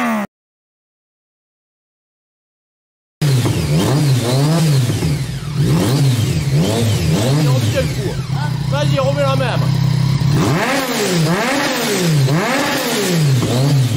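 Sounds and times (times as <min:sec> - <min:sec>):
motorcycle engine revving: 0:03.2 - 0:13.9.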